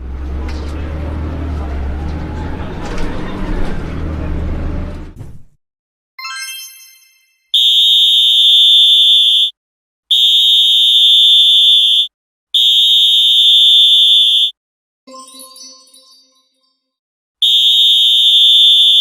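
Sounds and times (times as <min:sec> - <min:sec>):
chime ringing: 0:06.2 - 0:07.6, 0:15.1 - 0:16.9
electronic alarm buzzer: 0:07.6 - 0:09.5, 0:10.1 - 0:14.5, 0:17.4 - 0:19.0.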